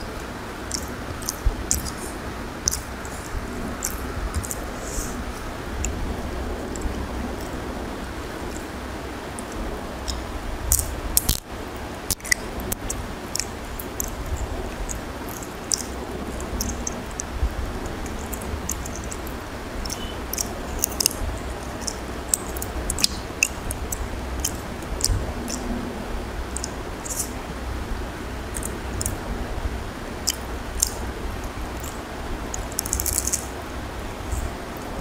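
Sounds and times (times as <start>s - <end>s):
wet chewing and mouth clicks: 0.0s - 7.6s, 9.3s - 11.4s, 12.0s - 25.8s, 26.5s - 27.4s, 28.4s - 29.2s, 30.2s - 33.6s
low steady hum: 0.0s - 35.0s.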